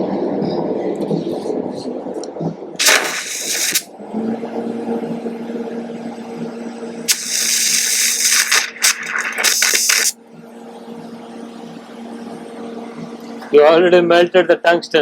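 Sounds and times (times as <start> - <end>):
welding arc hissing: 2.8 - 3.9, 7.1 - 10.2
welding machine hum: 2.8 - 3.9, 7.1 - 10.2.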